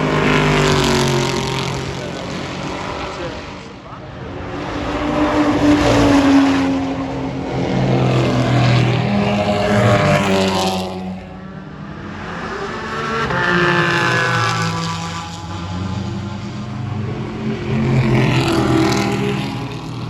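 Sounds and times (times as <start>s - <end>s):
race cars passing: 0.0s - 20.0s.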